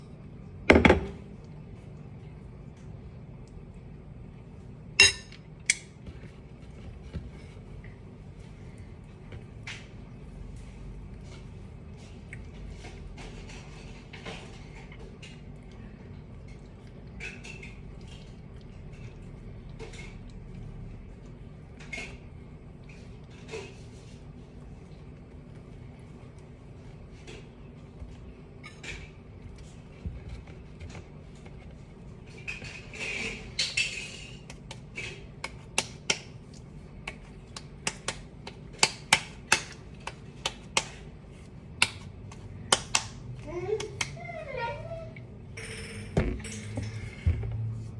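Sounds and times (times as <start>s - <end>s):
steady low hum: 0.0s - 47.9s
dough squishing: 5.6s - 45.5s, 46.2s - 47.9s
hands slapping dough: 34.4s - 44.2s.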